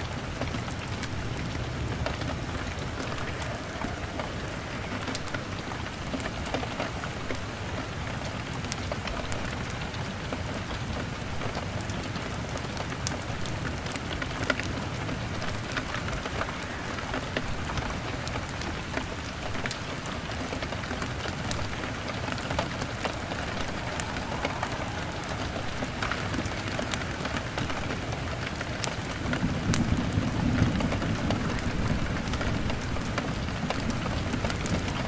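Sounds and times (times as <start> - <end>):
log fire crackling: 0.0 - 9.8, 10.8 - 35.0
rain on a window: 0.0 - 35.0.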